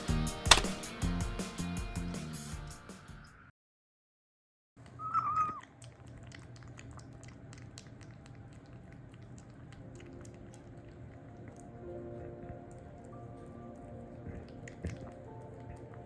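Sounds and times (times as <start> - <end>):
kitten meowing: 5.0 - 5.6.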